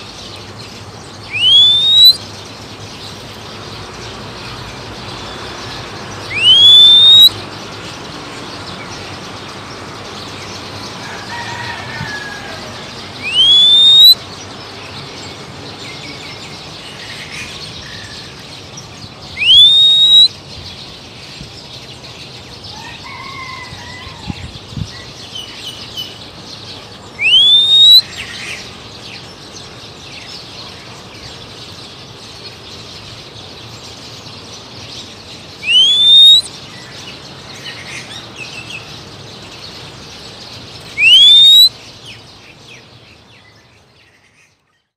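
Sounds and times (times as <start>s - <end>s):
faint bird calls: 1.3s - 2.2s, 6.3s - 7.4s, 11.3s - 14.2s, 19.4s - 20.3s, 27.2s - 28.6s, 35.6s - 36.5s, 40.9s - 41.8s
loud rising whistle: 1.3s - 2.2s, 6.3s - 7.4s, 13.2s - 14.2s, 19.4s - 20.3s, 27.2s - 28.0s, 35.6s - 36.5s, 41.0s - 41.7s.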